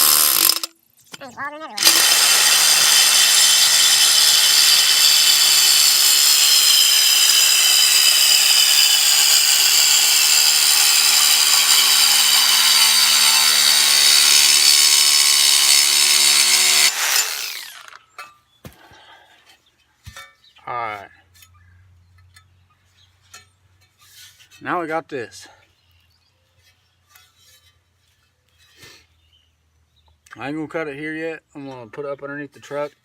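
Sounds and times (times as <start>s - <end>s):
power tool cutting steel pipe: 0.0s - 0.7s, 1.8s - 18.0s.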